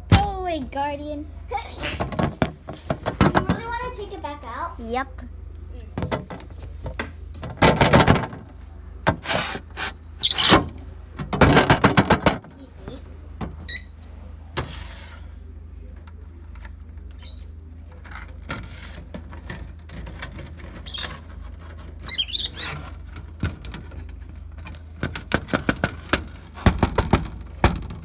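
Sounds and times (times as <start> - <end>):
lovebirds chirping: 13.7 - 14.1.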